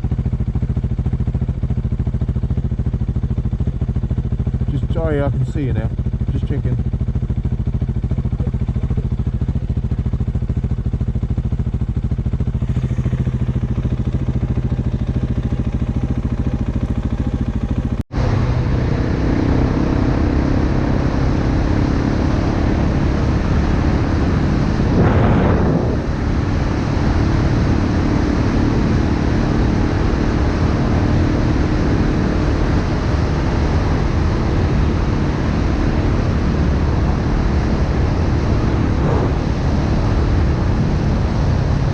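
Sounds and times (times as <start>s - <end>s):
dirt bike engine cruising: 0.0s - 41.9s
wind on microphone: 23.9s - 27.8s, 35.6s - 41.9s.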